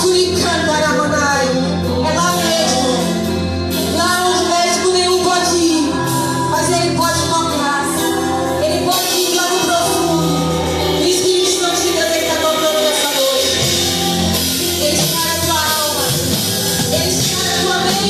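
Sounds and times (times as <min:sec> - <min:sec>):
band playing: 0:00.0 - 0:18.0
held bass notes: 0:00.0 - 0:18.0
drums with cymbals: 0:05.8 - 0:18.0
voices singing: 0:05.9 - 0:18.0.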